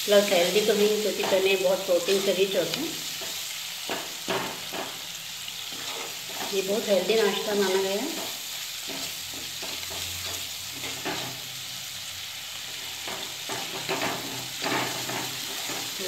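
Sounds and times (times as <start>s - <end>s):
masala sizzling in oil: 0.0s - 16.0s
spatula scraping a pan: 3.0s - 7.5s, 8.1s - 11.6s, 12.6s - 16.0s.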